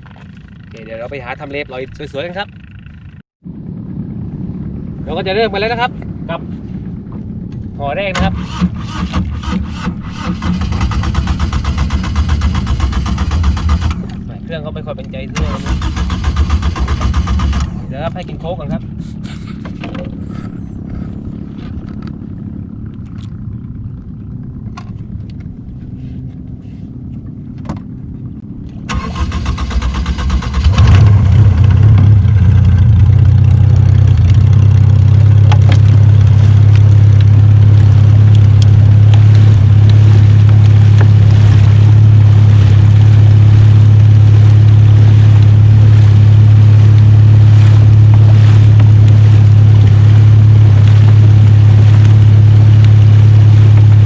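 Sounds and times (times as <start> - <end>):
boat engine rumbling: 0.0 - 54.0.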